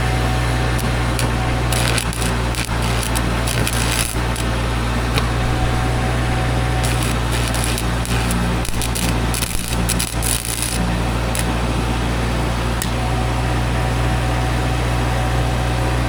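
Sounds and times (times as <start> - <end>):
arc welding crackle: 0.0 - 11.9
engine humming: 0.0 - 13.6.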